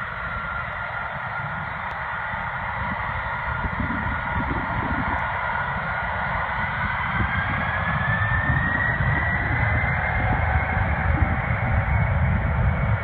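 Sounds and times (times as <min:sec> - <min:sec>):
jet engines spooling up: 0:00.0 - 0:13.0.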